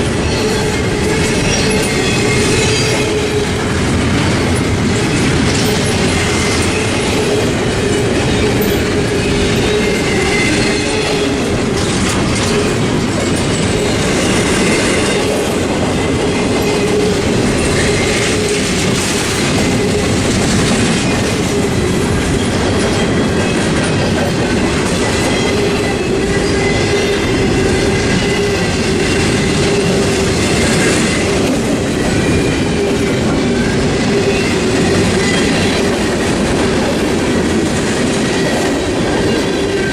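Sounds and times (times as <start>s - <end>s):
train cars clattering over rail joints: 0.0s - 39.9s
wheel squeal: 0.2s - 3.6s, 4.4s - 12.8s, 32.0s - 36.0s.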